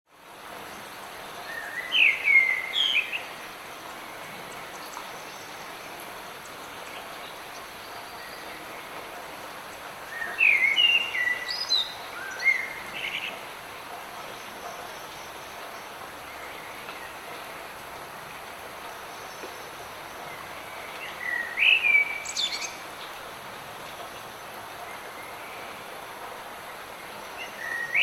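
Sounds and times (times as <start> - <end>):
light rain hiss: 0.1 - 28.0
songbird chirping: 18.9 - 23.2.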